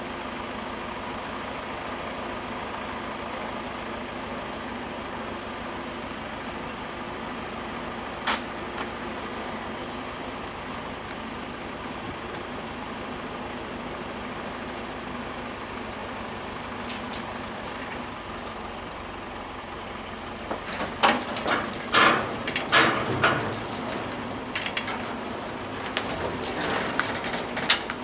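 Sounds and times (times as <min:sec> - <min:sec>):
tractor engine running: 0:15.5 - 0:28.0
loud knocks and scrapes: 0:20.5 - 0:28.0.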